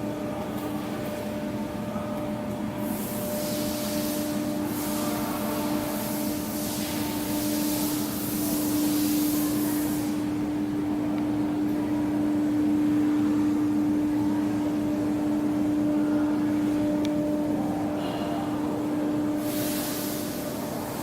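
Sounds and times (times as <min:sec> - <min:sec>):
high hiss: 0:19.4 - 0:21.0.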